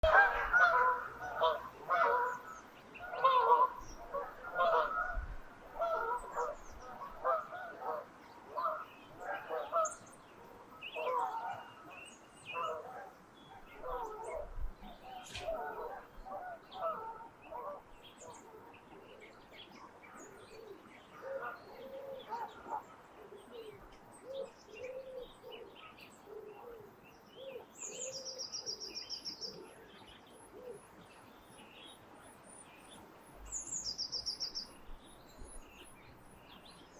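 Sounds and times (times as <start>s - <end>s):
geese honking: 0.0s - 5.2s, 5.8s - 8.0s
songbirds chirping and singing: 0.0s - 36.9s.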